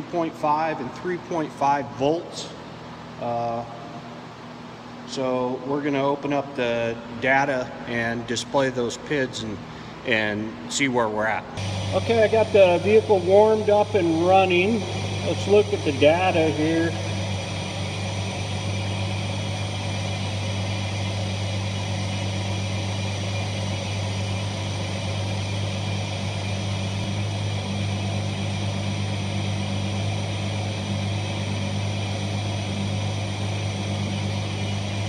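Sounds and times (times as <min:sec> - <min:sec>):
car engine idling: 0:11.6 - 0:20.5.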